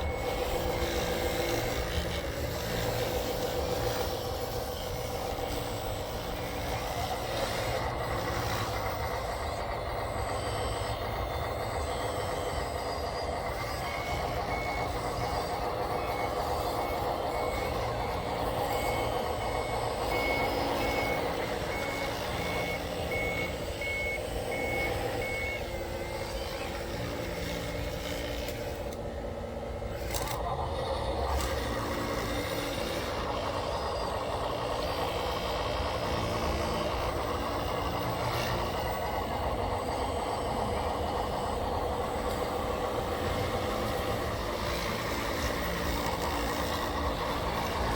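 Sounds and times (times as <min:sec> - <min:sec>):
machines mechanical whine: 0:00.0 - 0:47.9
reversing beeper: 0:03.8 - 0:28.8.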